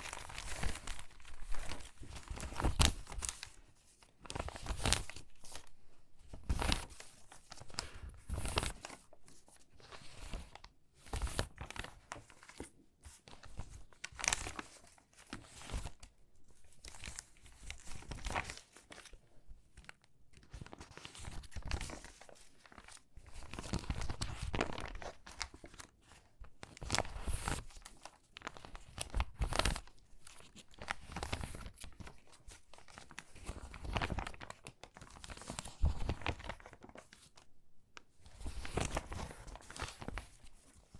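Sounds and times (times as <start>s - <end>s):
magazine pages crinkling: 0.0s - 3.6s, 16.8s - 19.2s, 20.0s - 37.4s, 38.2s - 40.9s.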